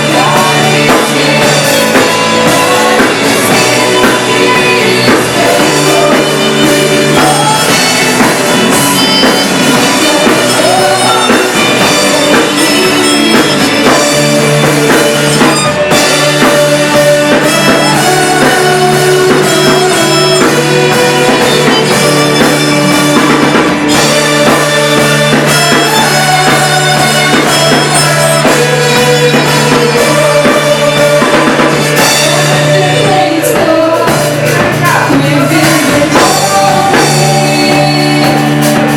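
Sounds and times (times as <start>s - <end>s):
drum kit steady beat: 0.0s - 38.9s
guitar: 0.0s - 38.9s
held instrumental notes: 0.0s - 38.9s.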